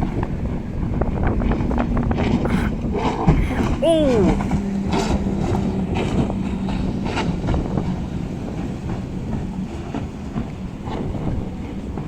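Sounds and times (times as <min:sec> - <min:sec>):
powerboat engine droning: 0:04.4 - 0:12.0.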